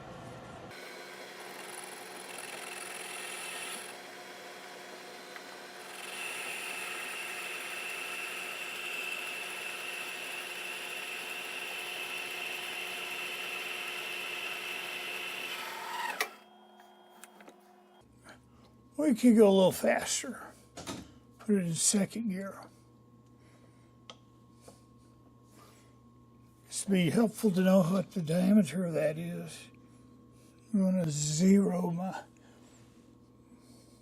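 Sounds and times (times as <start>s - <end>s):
metal lathe whirring: 0.7s - 16.5s.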